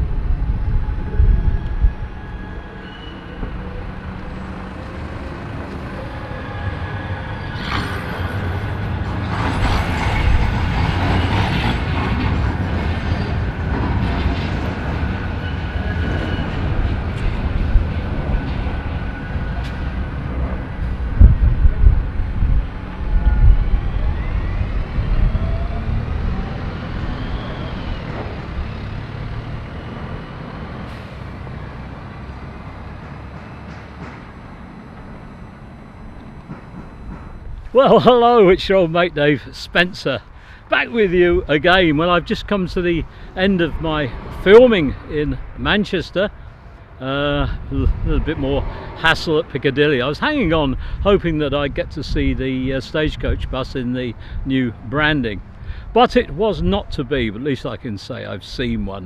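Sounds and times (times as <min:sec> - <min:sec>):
heavy vehicles passing: 0:00.0 - 0:59.0
thin gliding squeal: 0:01.9 - 0:04.6.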